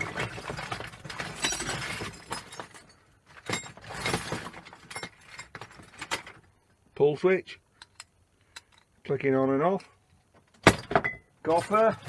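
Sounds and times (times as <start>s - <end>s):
electrical fittings clattering: 11.5s - 12.0s.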